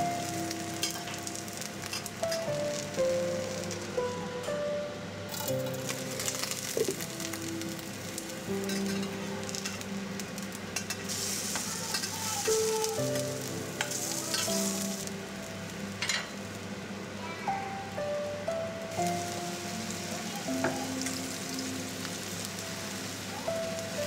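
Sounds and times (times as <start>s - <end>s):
fritters sizzling in hot oil: 0.0s - 4.0s, 5.3s - 16.5s.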